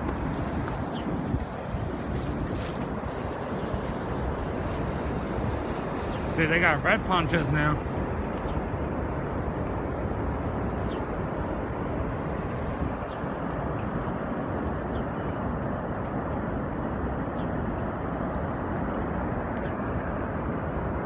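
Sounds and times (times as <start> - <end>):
waterfall roaring: 0.0 - 10.4.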